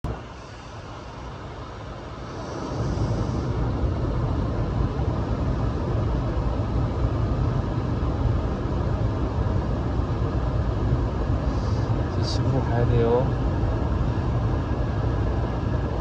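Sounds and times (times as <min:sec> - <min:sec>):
steady hiss: 0:00.1 - 0:04.7.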